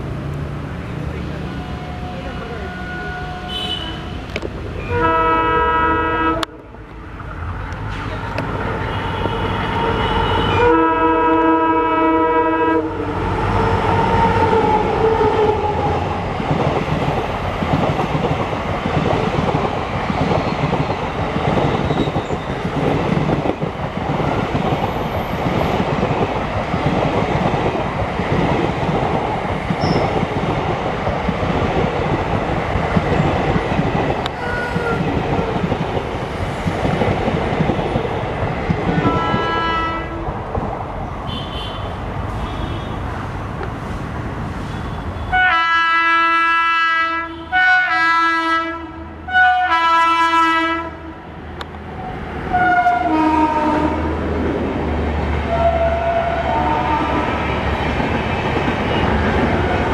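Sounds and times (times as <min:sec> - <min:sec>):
train rumbling past: 0:00.0 - 0:59.9
locomotive horn blasts: 0:01.6 - 0:06.6, 0:07.9 - 0:15.6, 0:34.4 - 0:35.1, 0:38.9 - 0:40.3, 0:41.3 - 0:43.0, 0:44.8 - 0:51.1, 0:52.5 - 0:54.1, 0:55.5 - 0:57.4
train wheel clatter: 0:16.3 - 0:39.6.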